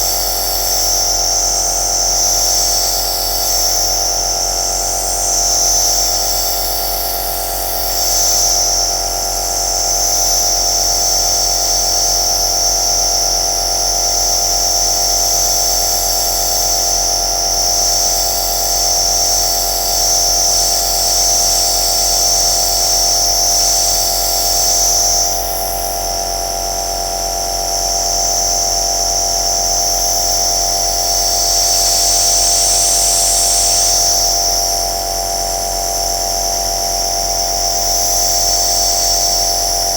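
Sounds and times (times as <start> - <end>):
high hiss of air and mist: 0.0 - 8.9, 15.2 - 26.1
nebuliser motor hum: 0.0 - 39.9.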